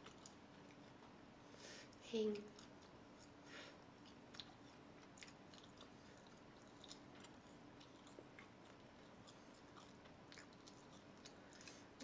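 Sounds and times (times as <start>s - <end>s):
faint chewing: 0.0s - 12.0s.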